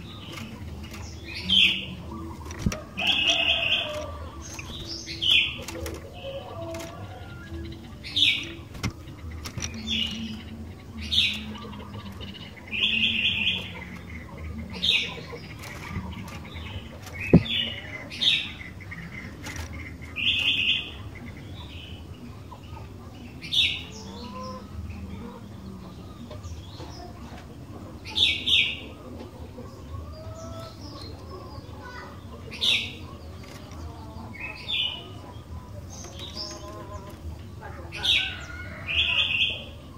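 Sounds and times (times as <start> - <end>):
bird chirping: 0.0 - 22.4.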